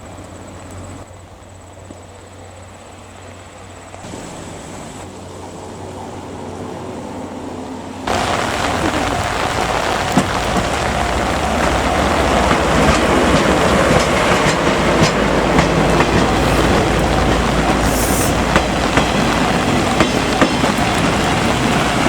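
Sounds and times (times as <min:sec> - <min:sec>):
train running past: 0:00.0 - 0:22.0
wheels clicking over rail joints: 0:00.0 - 0:22.0
heavy rain falling: 0:03.9 - 0:22.0.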